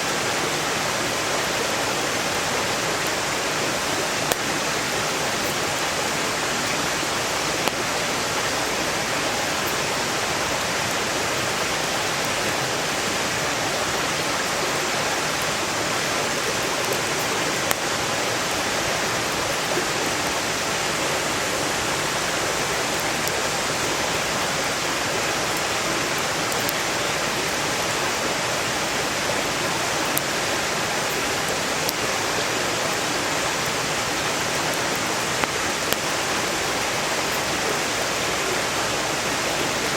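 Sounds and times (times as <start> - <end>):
mountain stream rushing: 0.0 - 39.9
campfire wood popping: 4.1 - 5.7, 7.4 - 7.9, 16.4 - 18.0.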